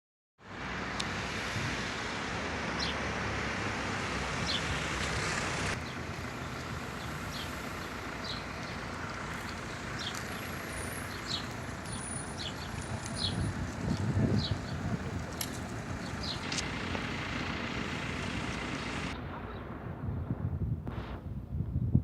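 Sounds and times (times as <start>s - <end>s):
passing vehicle rumble: 0.4s - 22.0s
bird chirps: 9.4s - 16.6s.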